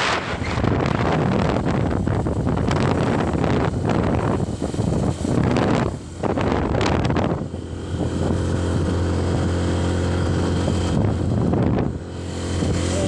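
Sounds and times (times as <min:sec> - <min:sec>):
vehicle engine running: 0:00.0 - 0:13.0
wind on microphone: 0:00.0 - 0:13.0.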